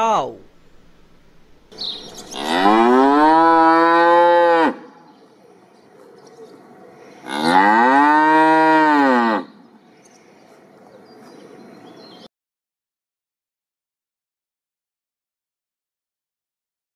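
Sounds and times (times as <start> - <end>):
cow mooing: 2.3 - 4.9, 7.2 - 9.6.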